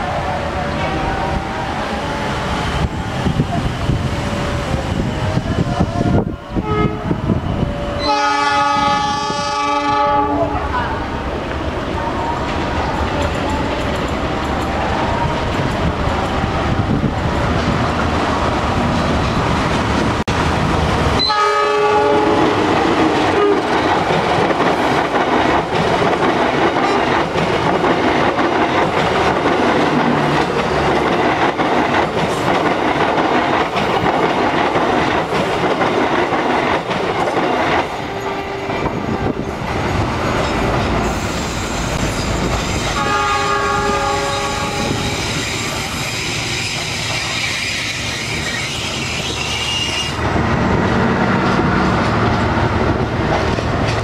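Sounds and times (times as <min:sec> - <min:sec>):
train horn blast: 0:00.0 - 0:02.5, 0:06.6 - 0:07.2, 0:07.9 - 0:11.0, 0:21.2 - 0:23.8, 0:42.7 - 0:48.1
train wheels clacking over rail joints: 0:22.6 - 0:38.0, 0:51.3 - 0:54.0.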